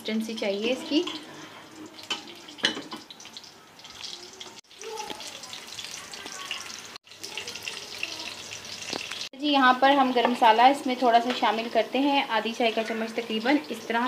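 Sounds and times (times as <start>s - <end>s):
food sizzling in hot fat: 0.0s - 14.0s.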